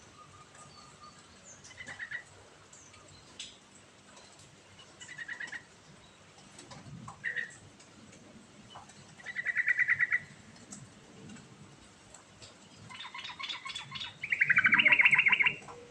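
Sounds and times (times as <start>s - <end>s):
bird chattering trills: 12.9s - 15.8s.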